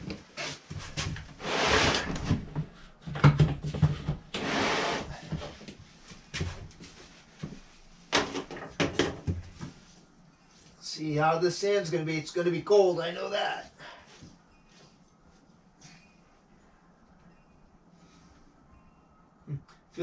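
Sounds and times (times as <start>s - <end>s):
scraping or rustling: 0.4s - 2.4s.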